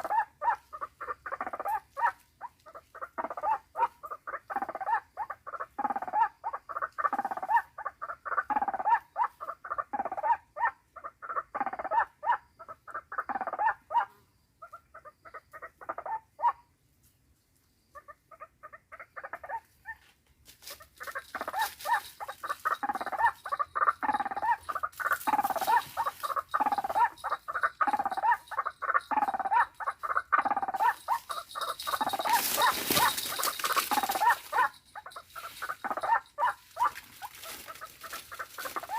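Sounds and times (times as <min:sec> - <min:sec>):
bird harsh calls: 0:20.7 - 0:38.9.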